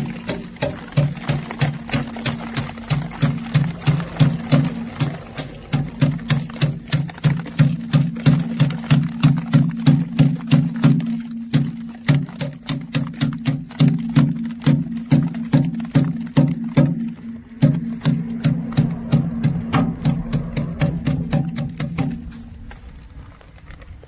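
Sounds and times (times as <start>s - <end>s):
threshing knocks: 0.0s - 22.5s
low hum: 16.0s - 24.0s.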